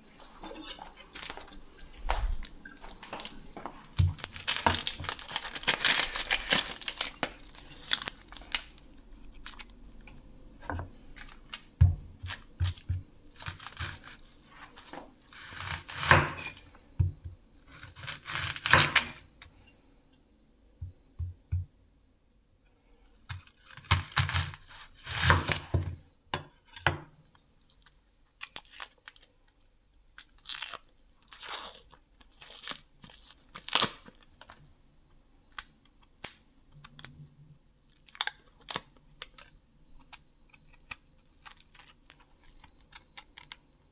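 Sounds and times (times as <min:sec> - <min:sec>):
food packaging tearing and crinkling: 0:00.6 - 0:01.6, 0:02.2 - 0:10.0, 0:11.1 - 0:16.8, 0:17.6 - 0:19.3, 0:23.1 - 0:25.8, 0:27.7 - 0:34.6, 0:35.5 - 0:43.9.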